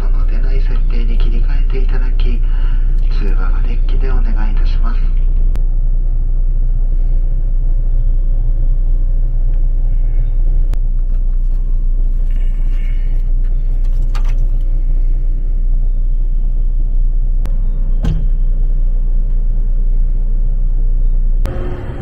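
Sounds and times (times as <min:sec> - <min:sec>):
moving train rumble: 0:14.5 - 0:22.0.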